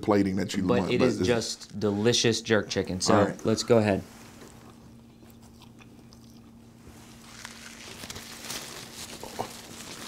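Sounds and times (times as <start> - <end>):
person chewing food: 4.6 - 10.0.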